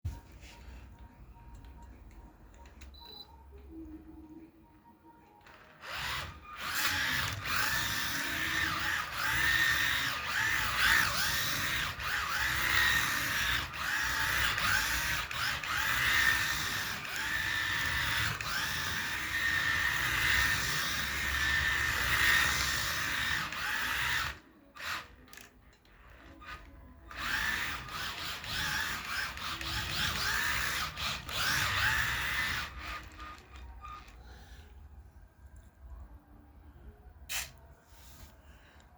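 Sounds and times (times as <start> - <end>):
toy car electric motor whining: 5.4 - 34.6.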